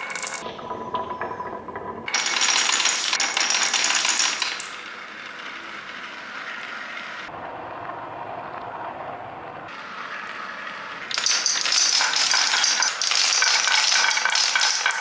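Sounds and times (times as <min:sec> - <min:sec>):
marbles rolling down a track: 0:00.0 - 0:00.4, 0:02.1 - 0:06.4, 0:11.1 - 0:15.0.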